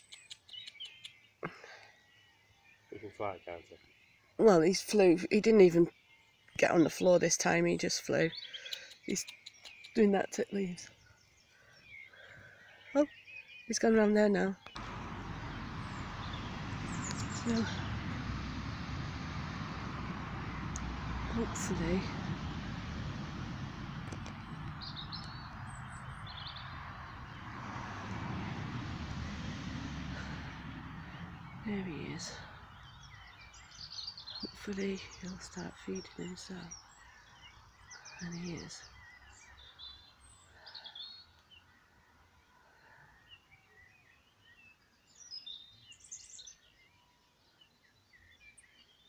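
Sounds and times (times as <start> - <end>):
small birds chirping: 0.0 - 49.0
low background rumble: 14.8 - 37.0.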